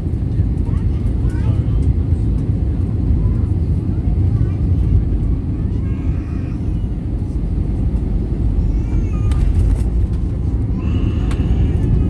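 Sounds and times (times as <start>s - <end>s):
aircraft cabin rumble: 0.0s - 12.0s
faint high voice-like sounds: 3.1s - 7.4s.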